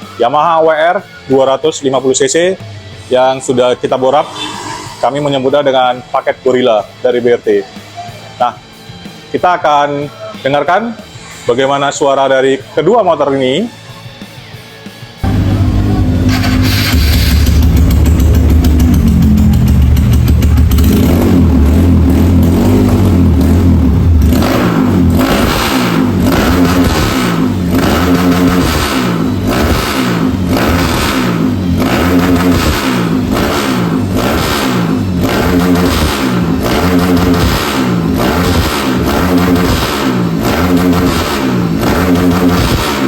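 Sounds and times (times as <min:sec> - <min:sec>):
dirt bike engine running: 0:15.2 - 0:43.0.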